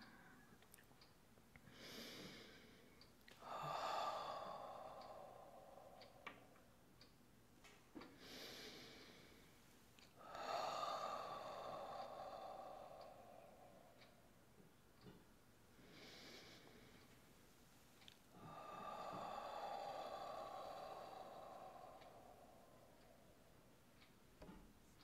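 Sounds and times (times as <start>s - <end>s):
woman sighing breathily: 18.4s - 23.2s.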